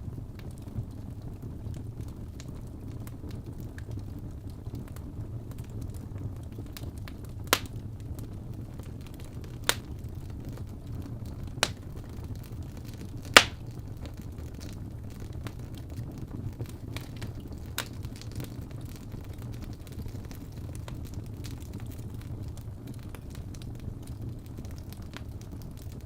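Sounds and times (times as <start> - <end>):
wood fire burning: 0.0 - 26.0
logs popping: 7.5 - 7.7, 9.6 - 9.9, 11.6 - 11.8, 13.3 - 13.6.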